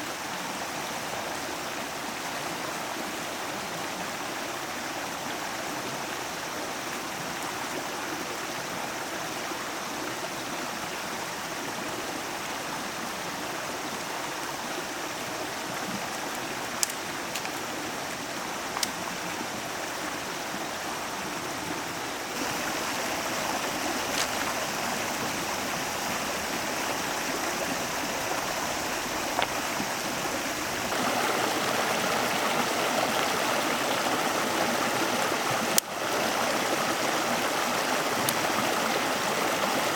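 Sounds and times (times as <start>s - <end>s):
flowing stream: 0.0s - 39.9s
sharp clicks: 16.2s - 17.6s.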